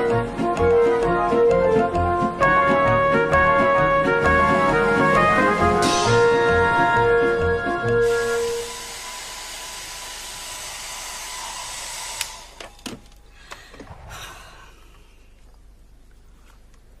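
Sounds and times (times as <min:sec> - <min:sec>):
hair dryer running: 0:07.9 - 0:12.6
hair dryer switch click: 0:12.1 - 0:12.4.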